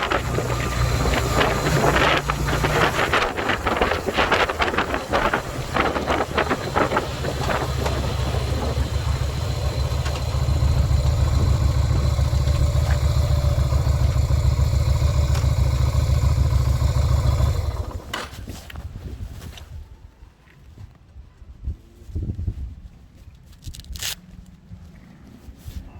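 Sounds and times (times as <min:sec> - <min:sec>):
motorcycle engine running: 0:00.0 - 0:18.1.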